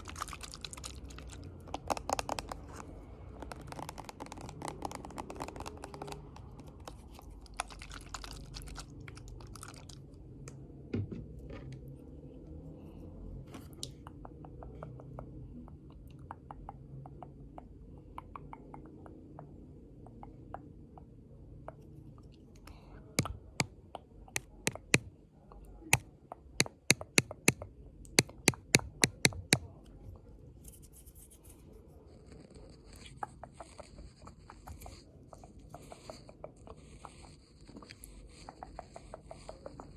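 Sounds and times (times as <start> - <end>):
scratchy crinkly rubbing: 1.8 - 7.4, 30.6 - 39.9
sharp taps: 24.3 - 25.1, 25.9 - 29.7
soft high scratching: 30.5 - 39.9.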